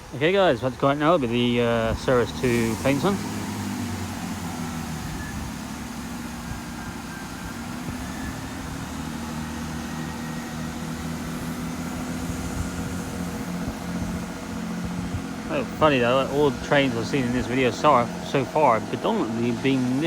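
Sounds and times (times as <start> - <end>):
diesel train engines humming: 0.0 - 20.0.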